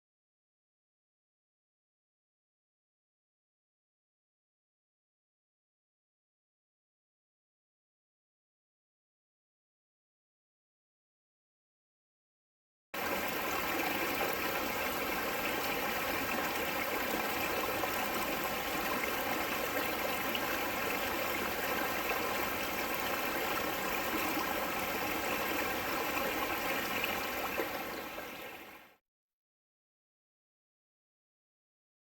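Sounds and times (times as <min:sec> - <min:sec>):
rushing water: 0:13.0 - 0:28.9.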